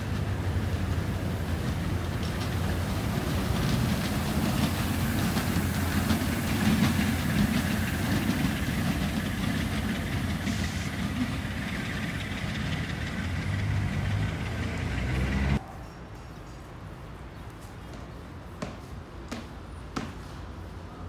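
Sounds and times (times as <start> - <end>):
locomotive diesel engine: 0.0 - 15.6
rail cars rumbling and clattering: 0.0 - 17.3.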